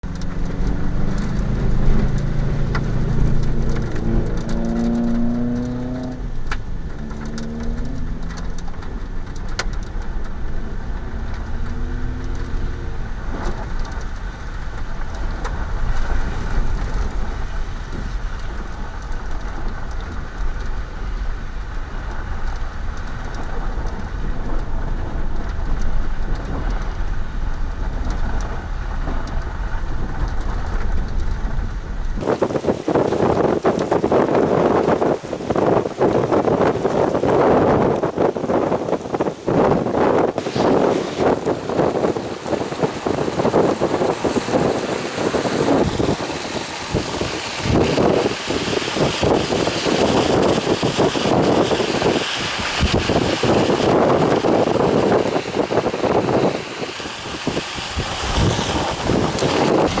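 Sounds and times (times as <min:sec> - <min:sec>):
car engine accelerating: 0:00.0 - 0:17.5
rain and wind rushing: 0:00.0 - 1:00.0
road noise: 0:00.0 - 1:00.0.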